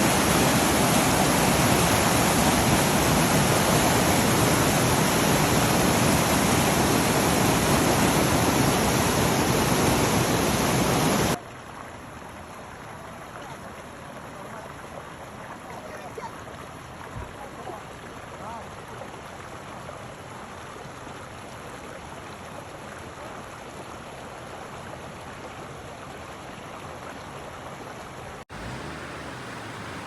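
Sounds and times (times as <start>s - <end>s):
floodwater rushing: 0.0s - 20.4s, 27.8s - 30.0s.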